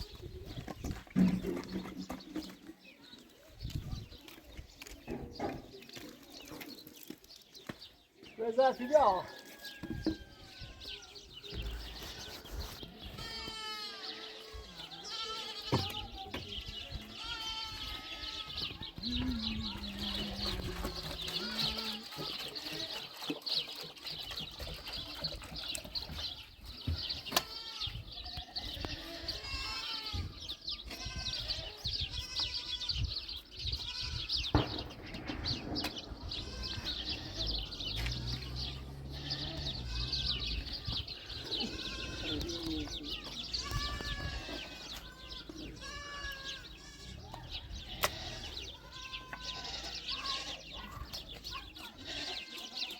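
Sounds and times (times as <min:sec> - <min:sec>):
goats bleating: 0:13.1 - 0:15.9, 0:17.0 - 0:22.9, 0:27.0 - 0:33.0, 0:36.2 - 0:51.0, 0:51.8 - 0:52.9.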